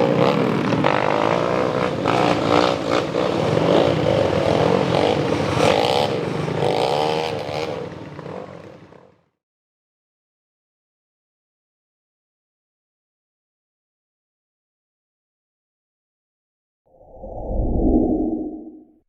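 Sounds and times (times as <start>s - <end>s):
motocross bike engines revving: 0.0s - 9.0s.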